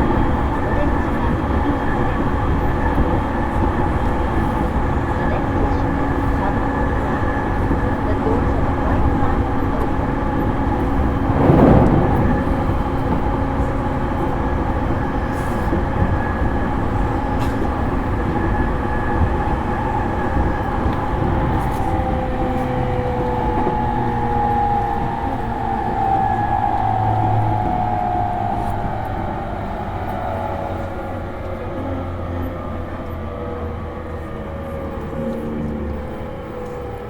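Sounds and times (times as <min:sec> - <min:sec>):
train wheels rumbling on rails: 0:00.0 - 0:37.0
brief rush of air: 0:11.2 - 0:13.6.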